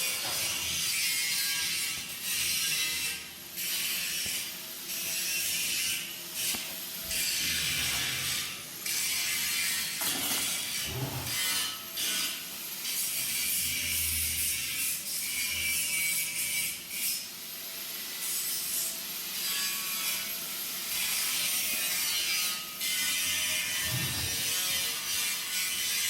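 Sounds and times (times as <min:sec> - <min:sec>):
tool rasping on steel: 0:21.0 - 0:26.0.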